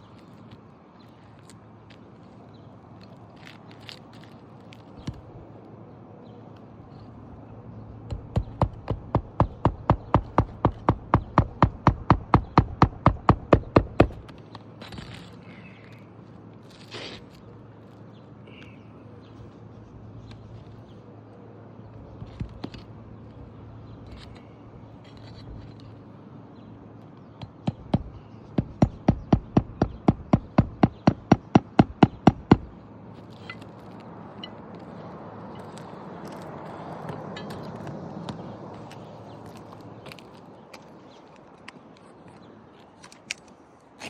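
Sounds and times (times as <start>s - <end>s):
hammer striking nails: 8.1s - 14.3s, 27.4s - 32.8s
light knocks and scrapes: 16.6s - 17.5s, 24.0s - 26.0s.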